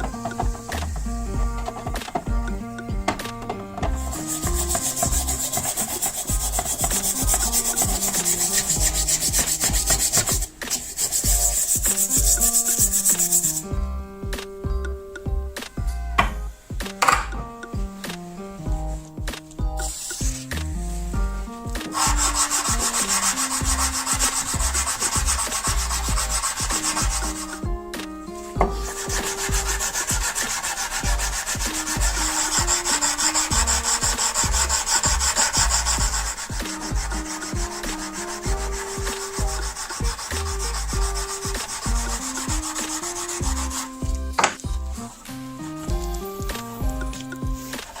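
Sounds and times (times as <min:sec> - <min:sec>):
abrasive sanding: 0:00.0 - 0:13.7, 0:19.8 - 0:48.0.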